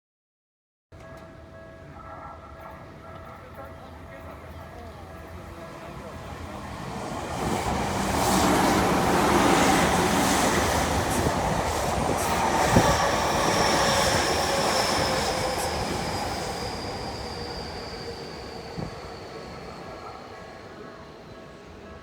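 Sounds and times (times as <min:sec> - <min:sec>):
train rumble and rail noise: 0:01.0 - 0:22.0
high wheel squeal: 0:12.3 - 0:20.4.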